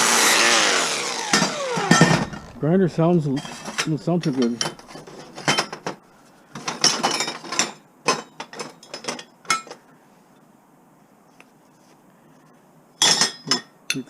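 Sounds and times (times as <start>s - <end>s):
small metal parts clinking: 1.3s - 2.5s, 3.3s - 6.0s.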